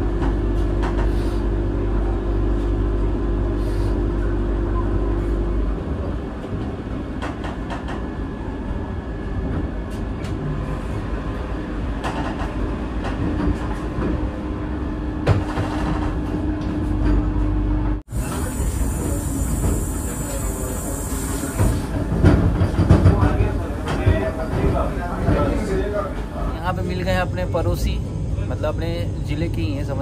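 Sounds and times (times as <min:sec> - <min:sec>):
electric train rumbling: 0:00.0 - 0:30.0
hiss: 0:18.2 - 0:22.0.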